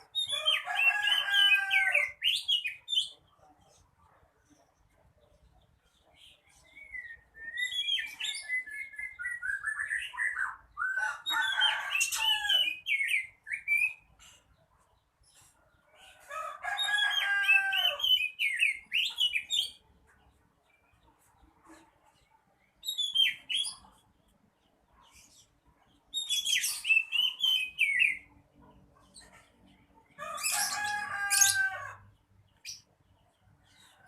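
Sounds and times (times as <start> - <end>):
songbird singing varied whistles: 6.7 - 11.0.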